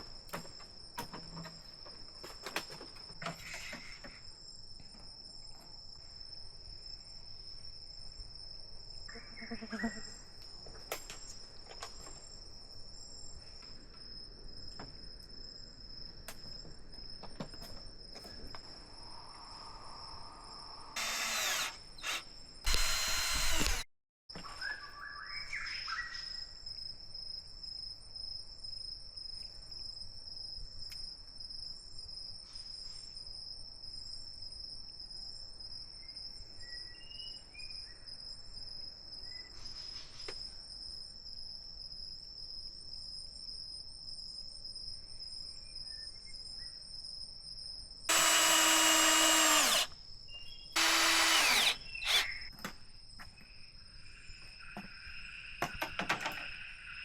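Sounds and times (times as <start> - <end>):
high-pitched insect chirring: 19.4 - 23.8, 48.1 - 49.8
power drill running: 21.0 - 23.9, 48.1 - 49.9, 50.8 - 52.5.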